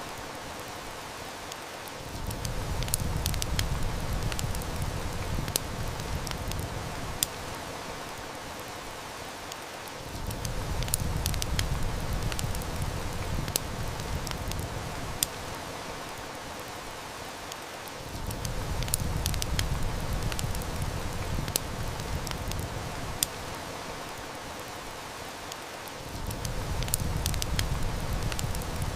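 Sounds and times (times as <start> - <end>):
heavy rain: 0.0 - 28.9
wood fire crackling: 0.0 - 28.9.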